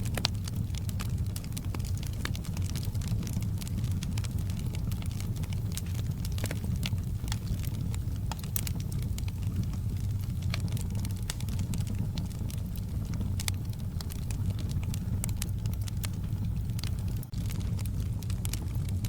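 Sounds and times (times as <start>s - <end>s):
low rumble: 0.0s - 19.0s
wood fire crackling: 0.0s - 19.0s.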